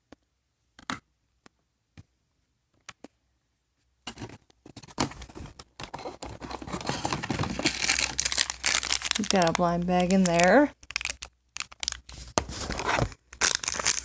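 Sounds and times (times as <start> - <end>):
packaging crinkling and scratching: 4.2 - 14.0.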